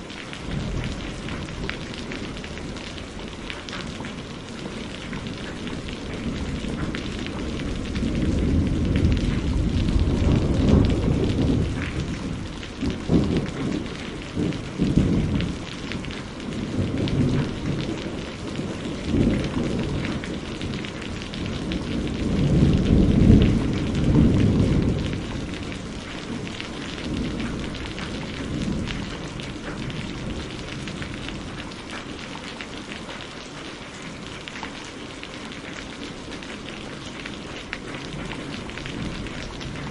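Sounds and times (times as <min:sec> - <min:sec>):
steady rain: 0:00.0 - 0:39.9
rolling thunder rumble: 0:00.4 - 0:31.7, 0:37.8 - 0:39.9
sharp thunder cracks: 0:07.9 - 0:15.6.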